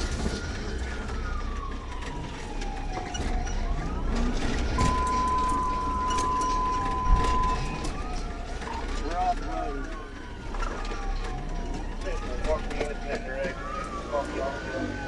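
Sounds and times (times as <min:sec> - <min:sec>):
car engine and road rumble: 0:00.0 - 0:15.0
police siren wailing: 0:00.0 - 0:15.0
steady high tone: 0:04.8 - 0:08.2.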